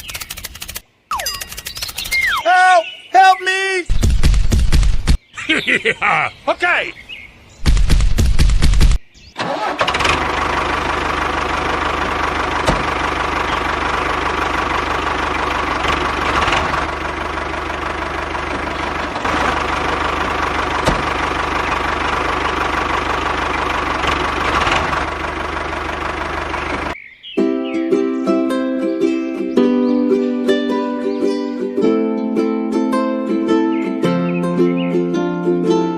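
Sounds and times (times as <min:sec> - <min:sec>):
small tractor engine idling: 0:09.4 - 0:27.0.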